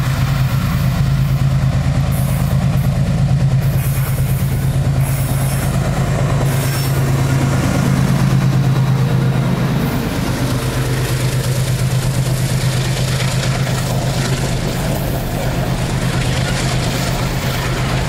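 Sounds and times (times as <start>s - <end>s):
locomotive engines droning: 0.0s - 18.0s
freight wagons rolling past: 6.4s - 18.0s.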